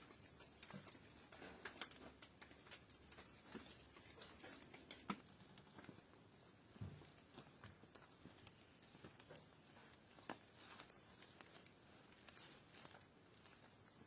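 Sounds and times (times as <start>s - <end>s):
faint clicks and ticks: 0.0s - 6.2s.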